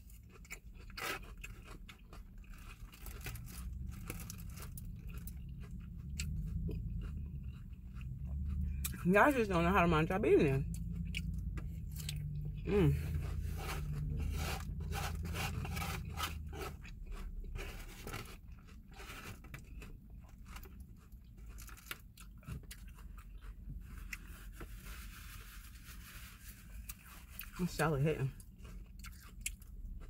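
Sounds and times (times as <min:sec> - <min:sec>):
crunchy salad being chewed: 0:00.0 - 0:30.0
fork scraping styrofoam container: 0:12.9 - 0:19.6.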